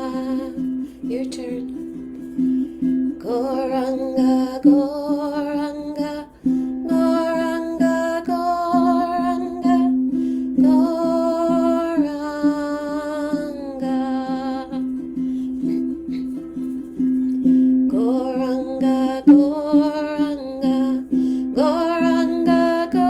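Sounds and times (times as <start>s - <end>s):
strummed string instrument: 0.0s - 23.0s.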